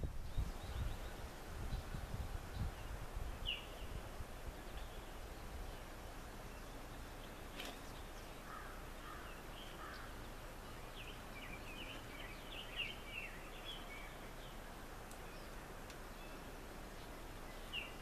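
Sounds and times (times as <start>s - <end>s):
birds chirping: 0.0s - 18.0s
faint outdoor background noise: 0.0s - 18.0s.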